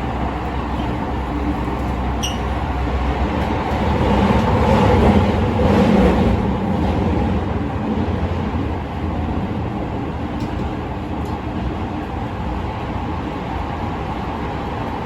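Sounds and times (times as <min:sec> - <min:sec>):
subway train wheels rumbling: 0:00.0 - 0:15.0
brief high squeak: 0:02.2 - 0:02.5.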